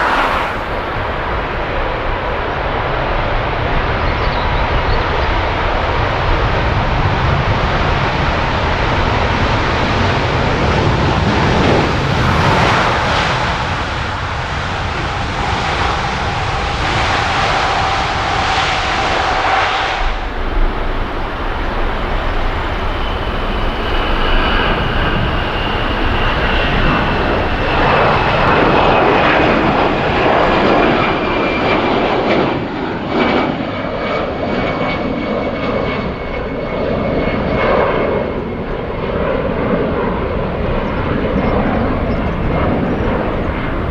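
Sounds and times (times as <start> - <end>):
jet engines rumbling: 0.0 - 43.9
jet whine falling in pitch: 9.4 - 14.8, 19.7 - 33.7.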